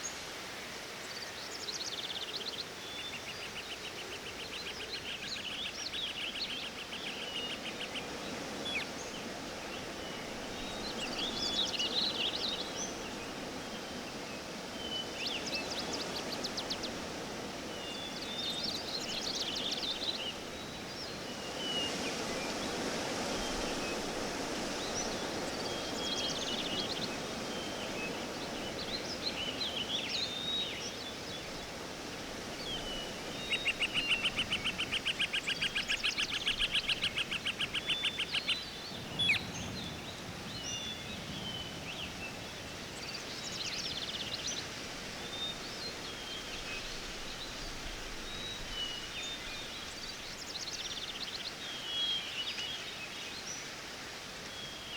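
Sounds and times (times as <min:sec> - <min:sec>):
background hiss: 0:00.0 - 0:54.9
bird chirps: 0:32.7 - 0:40.0.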